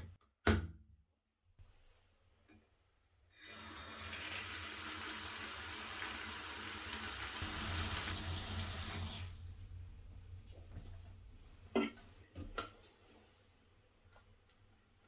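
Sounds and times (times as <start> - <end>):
low hum: 7.6 - 11.8.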